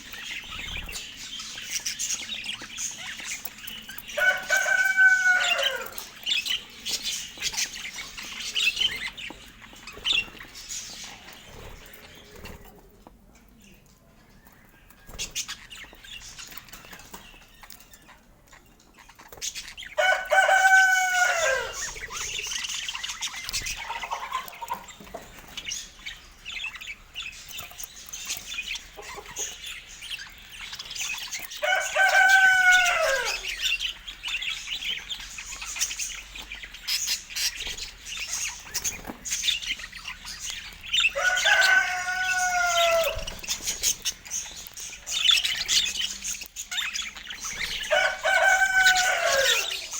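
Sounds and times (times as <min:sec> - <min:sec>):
drawn-out falling bird calls: 0:00.0 - 0:12.7, 0:19.3 - 0:26.0, 0:31.0 - 0:49.9
birds chattering and chirping: 0:00.0 - 0:49.9.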